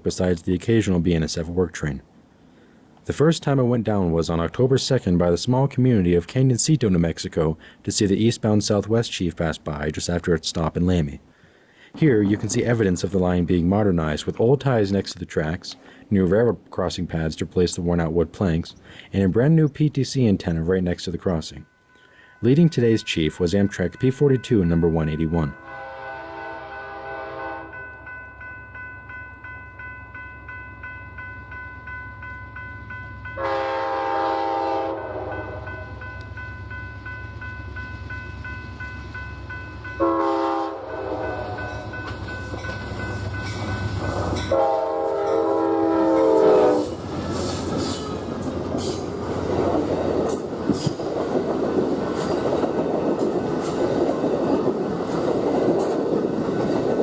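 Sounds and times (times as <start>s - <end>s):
train wheels clattering over joints: 11.9s - 14.6s, 46.8s - 57.0s
locomotive engine hum: 22.2s - 57.0s
locomotive air horn blasts: 25.6s - 27.8s, 33.4s - 36.0s, 40.0s - 42.0s, 44.3s - 47.0s.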